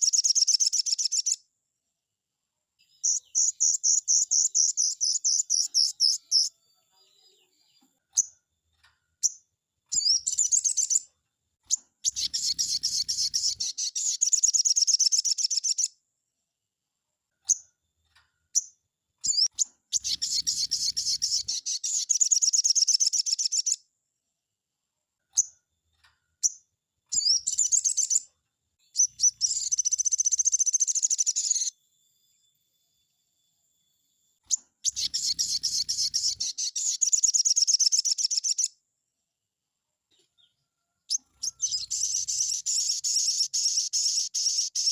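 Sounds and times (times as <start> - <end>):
songbird chattering trills: 3.0 - 6.5, 12.0 - 15.9, 19.3 - 23.8, 29.0 - 31.7, 34.8 - 38.7, 41.1 - 44.9.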